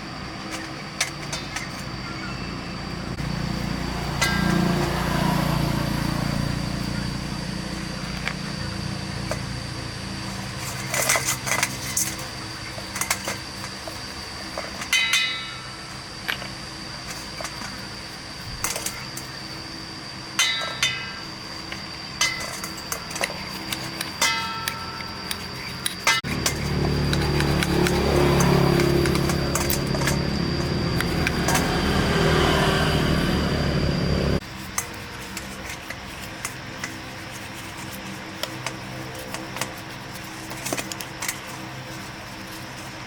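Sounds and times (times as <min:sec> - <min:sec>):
faint high whine: 0:00.0 - 0:43.0
steady low hum: 0:00.0 - 0:43.0
sharp ringing strikes: 0:04.0 - 0:06.2, 0:20.4 - 0:21.3, 0:24.2 - 0:25.5
metal tools clinking and tapping: 0:20.4 - 0:21.2, 0:22.2 - 0:32.1.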